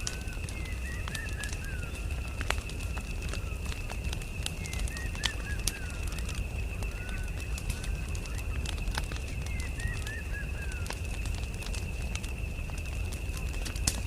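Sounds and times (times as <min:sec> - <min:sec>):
campfire crackling and popping: 0:00.0 - 0:14.0
bird chirping: 0:04.5 - 0:11.0.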